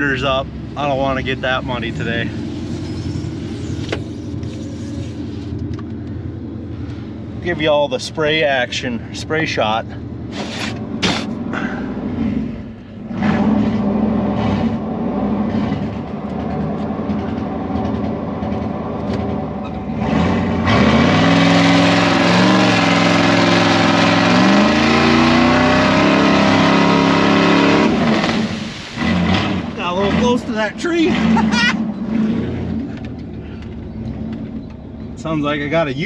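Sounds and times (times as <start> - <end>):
truck engine revving: 0.0 - 8.9, 9.8 - 36.0.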